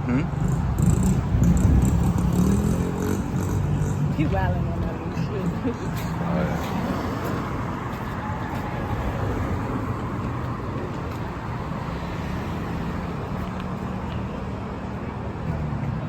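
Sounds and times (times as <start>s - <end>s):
outdoor background noise: 0.0s - 16.0s
motorcycle engine running: 0.4s - 4.0s.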